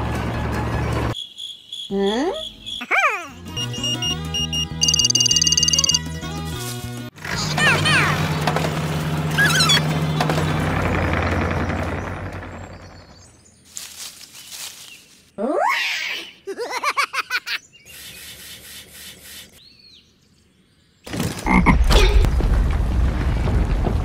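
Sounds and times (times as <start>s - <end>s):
croaking rattle: 4.8s - 6.0s.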